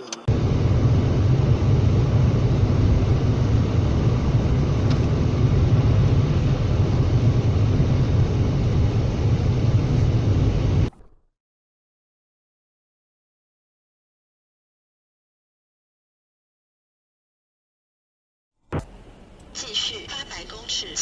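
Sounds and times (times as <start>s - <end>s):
vehicle road and engine rumble: 0.0s - 10.9s.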